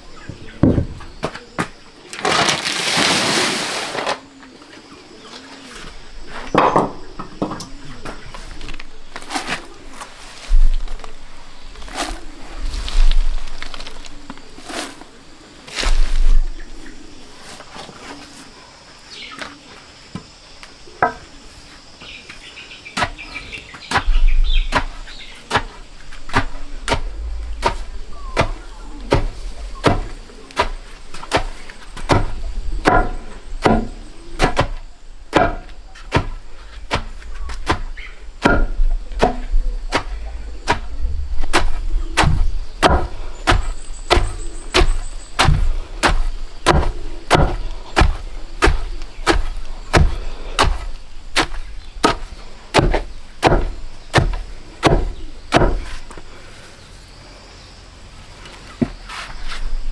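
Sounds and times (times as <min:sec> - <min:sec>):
sharp chopping strokes: 0:41.5 - 0:56.0.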